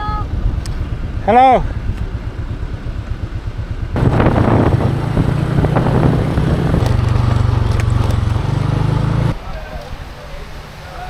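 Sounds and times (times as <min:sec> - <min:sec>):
motor scooter engine running: 0:02.0 - 0:09.4
wind buffeting microphone: 0:03.4 - 0:09.3.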